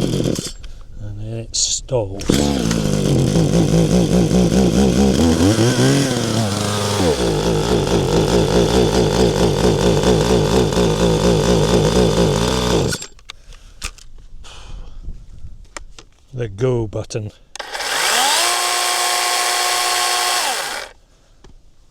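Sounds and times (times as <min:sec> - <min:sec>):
chainsaw engine running: 0:00.0 - 0:00.7, 0:02.2 - 0:13.2, 0:17.6 - 0:21.0.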